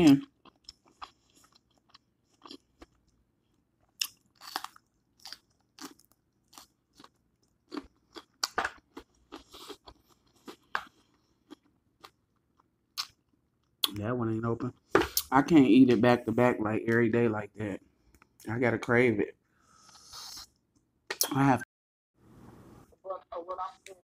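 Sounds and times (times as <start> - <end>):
person chewing crunchy pepper: 0.0 - 14.0.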